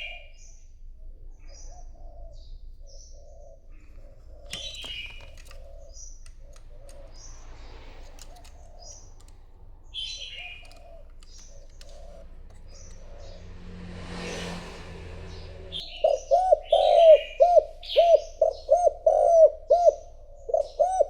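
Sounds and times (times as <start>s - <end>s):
small birds chirping: 1.2s - 21.0s
dove cooing: 3.2s - 14.2s, 15.4s - 21.0s.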